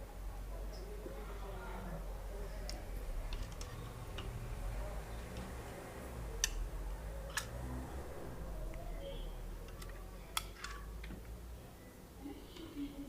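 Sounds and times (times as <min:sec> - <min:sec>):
low steady hum: 0:00.0 - 0:13.0
small hard parts clicking: 0:02.6 - 0:04.4, 0:07.2 - 0:07.6, 0:09.6 - 0:11.4.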